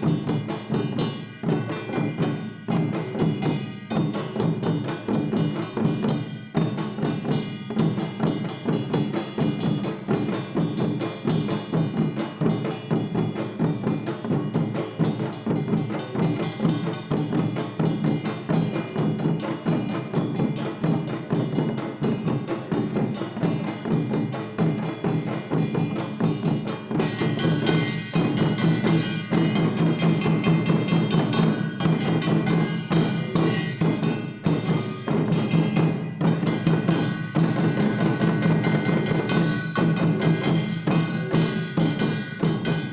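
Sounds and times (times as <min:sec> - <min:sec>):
percussion ensemble drums and gongs: 0:00.0 - 0:42.9
metallic ringing of gongs: 0:25.1 - 0:42.9.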